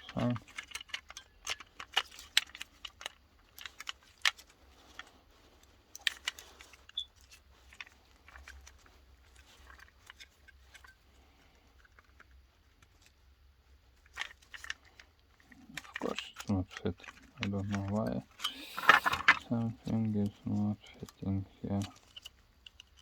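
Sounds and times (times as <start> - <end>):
plastic clicks and knocks: 15.7 - 20.0.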